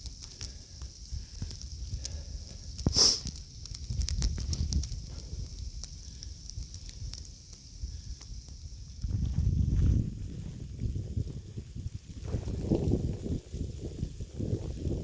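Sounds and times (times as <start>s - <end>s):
crackle of small ticks: 0.0s - 9.4s
wind rumble on microphone: 0.0s - 15.0s
short hissing burst: 2.1s - 3.4s.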